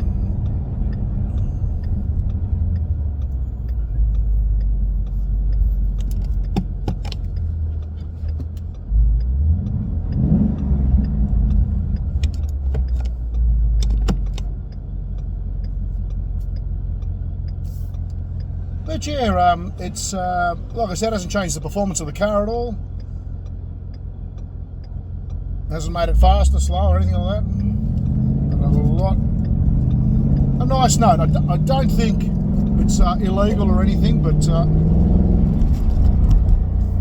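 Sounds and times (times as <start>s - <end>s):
sharp clicks: 0.0s - 20.0s
car engine drone from cabin: 0.0s - 37.0s.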